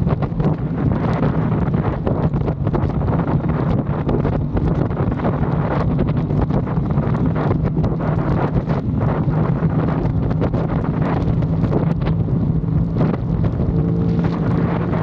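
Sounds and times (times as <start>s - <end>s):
motorcycle engine running: 0.0s - 15.0s
wind noise on microphone: 0.0s - 15.0s.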